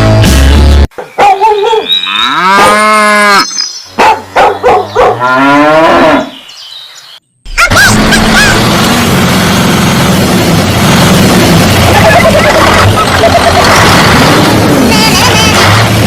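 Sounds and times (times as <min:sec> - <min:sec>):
cattle mooing: 0:02.1 - 0:03.5, 0:05.1 - 0:06.4.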